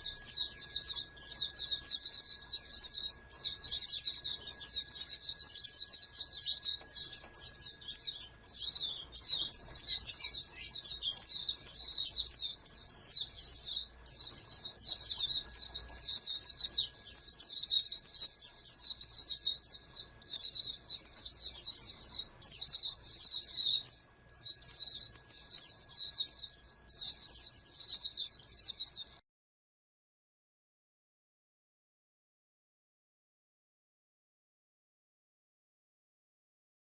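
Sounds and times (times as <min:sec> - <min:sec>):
white-eye high twittering song: 0:00.0 - 0:29.2.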